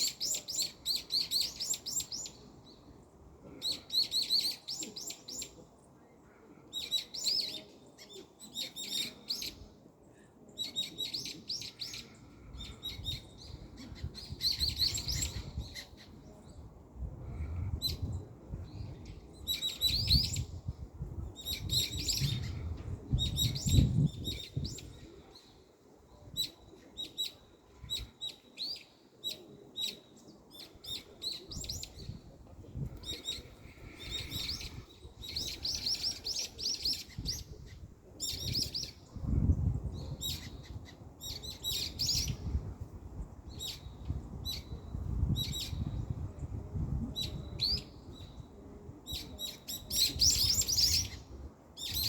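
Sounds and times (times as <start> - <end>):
small birds chirping: 32.8 - 42.5.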